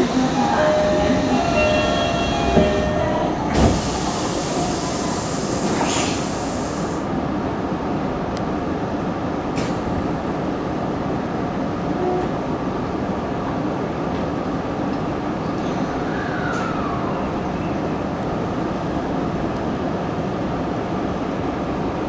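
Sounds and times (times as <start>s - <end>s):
stopped train humming: 0.0s - 15.8s
train thump: 0.4s - 4.2s
loud air hiss: 3.5s - 7.1s.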